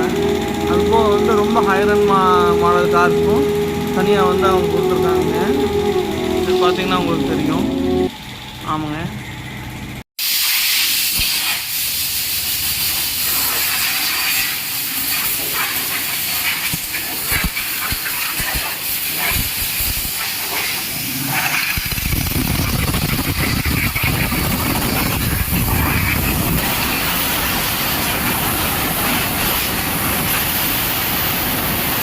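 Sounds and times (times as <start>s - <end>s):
water jets spraying: 10.2s - 32.0s.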